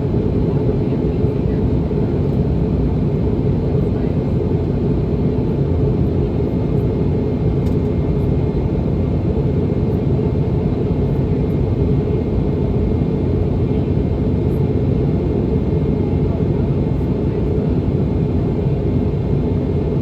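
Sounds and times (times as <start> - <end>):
aircraft cabin engine rumble: 0.0 - 20.0.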